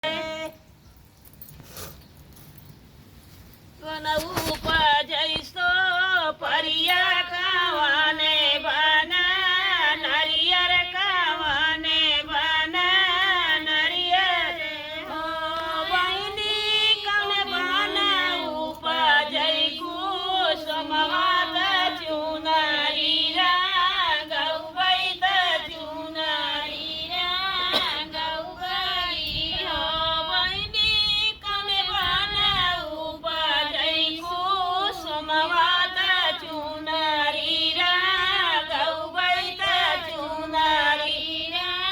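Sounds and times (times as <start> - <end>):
woman singing devotional folk song: 0.0 - 0.7, 3.6 - 41.9.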